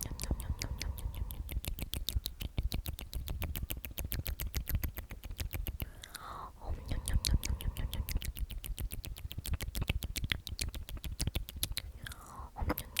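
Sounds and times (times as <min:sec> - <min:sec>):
mouth clicks: 0:00.0 - 0:13.0.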